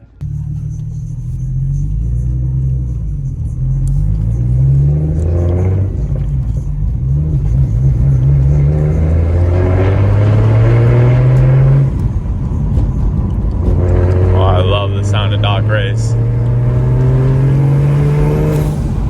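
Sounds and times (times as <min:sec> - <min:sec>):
turbo car engine revving: 0:00.0 - 0:19.0.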